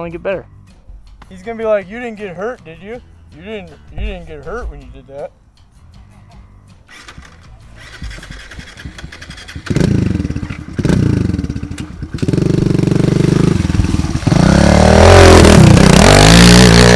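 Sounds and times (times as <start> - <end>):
pit bike engine starting: 6.9 - 16.9
pit bike engine revving: 7.8 - 16.9.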